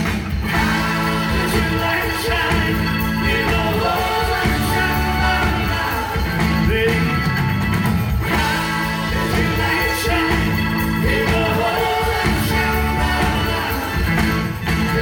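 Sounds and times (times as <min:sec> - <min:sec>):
rock band playing: 0:00.0 - 0:15.0
person singing: 0:08.2 - 0:15.0.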